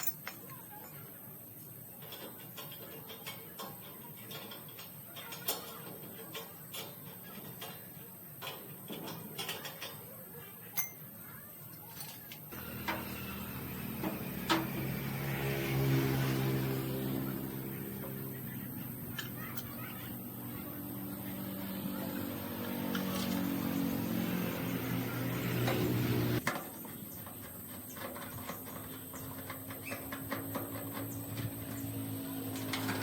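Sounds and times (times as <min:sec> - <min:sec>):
small metal parts clinking: 0:00.0 - 0:01.0, 0:10.7 - 0:11.1, 0:11.7 - 0:13.0, 0:19.0 - 0:20.1.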